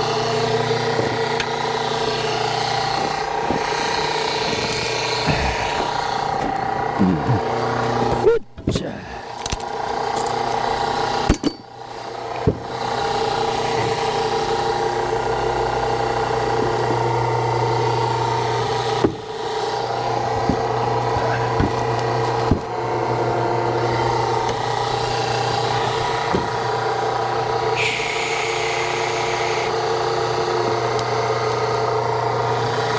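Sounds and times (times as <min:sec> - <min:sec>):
hydraulic log splitter humming: 0:00.0 - 0:32.9
wood cracking as it splits: 0:18.6 - 0:26.7.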